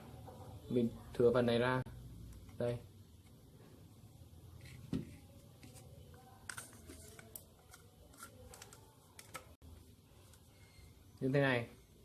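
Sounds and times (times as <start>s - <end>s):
plastic pipe parts clicking: 6.4s - 9.5s.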